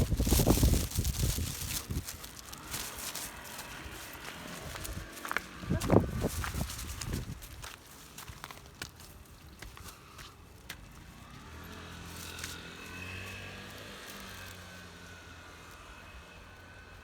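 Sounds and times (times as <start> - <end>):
low motor hum: 0.0 - 7.6.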